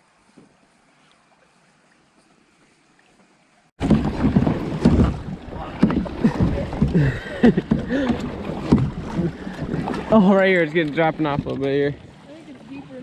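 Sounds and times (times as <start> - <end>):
water sloshing and gurgling: 0.5 - 13.0
knocks on kayak: 3.8 - 10.2.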